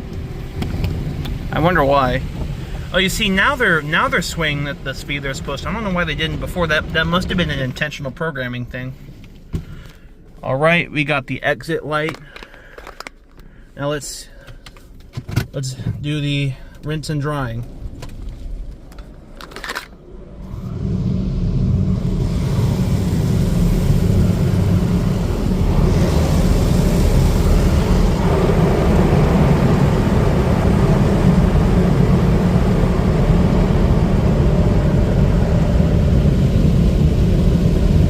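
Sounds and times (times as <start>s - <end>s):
car wash equipment rushing: 0.0s - 10.8s, 15.1s - 38.0s.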